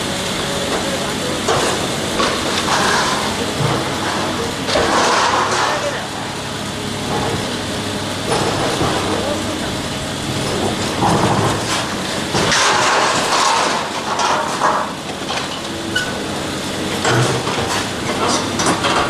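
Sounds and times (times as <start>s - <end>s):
heavy construction machinery: 0.0s - 19.0s
knocks and scraping: 1.5s - 6.0s, 10.4s - 16.1s.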